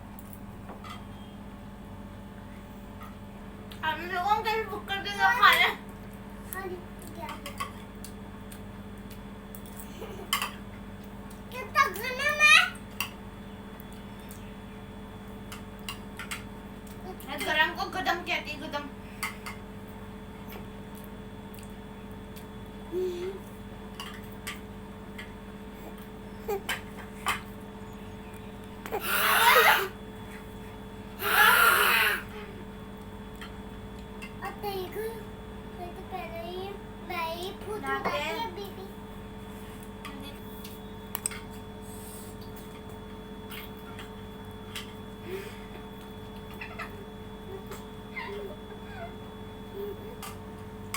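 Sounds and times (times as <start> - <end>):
steady low hum: 0.0 - 50.9
person humming mm: 31.2 - 32.3.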